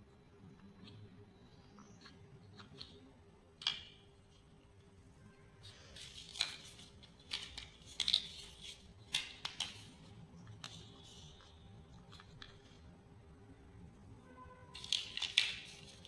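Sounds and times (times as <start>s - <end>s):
plastic bricks clicking together: 3.6s - 4.0s, 6.2s - 9.9s, 14.8s - 16.0s.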